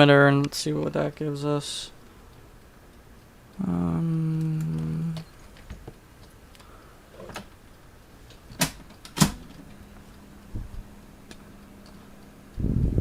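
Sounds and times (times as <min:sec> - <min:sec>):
faint tape transport hum: 0:00.0 - 0:13.0
cassette deck controls clicking: 0:08.3 - 0:09.8.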